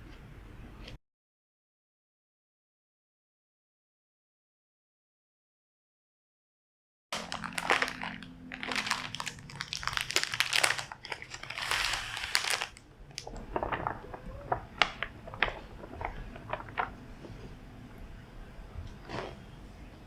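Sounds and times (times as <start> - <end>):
crinkling and crackling handling: 7.2 - 20.0.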